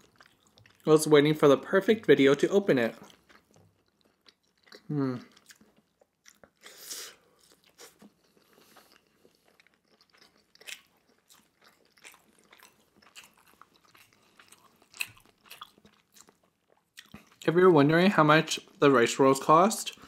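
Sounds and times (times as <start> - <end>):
person chewing: 0.0 - 0.9, 2.7 - 17.5.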